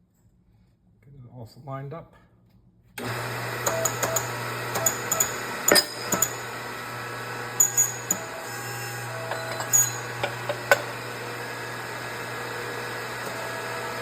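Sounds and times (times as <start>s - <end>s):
machine humming: 3.0s - 14.0s.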